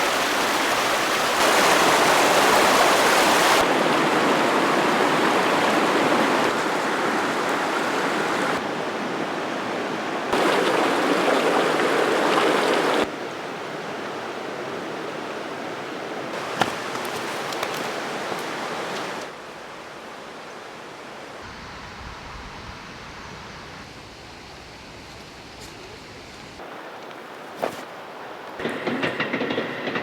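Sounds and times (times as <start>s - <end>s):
river water rushing: 0.0s - 21.4s.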